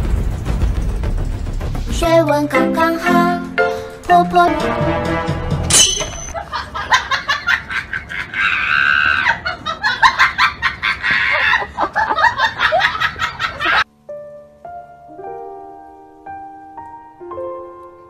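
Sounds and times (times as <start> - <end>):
person laughing with squeals: 6.3 - 13.8.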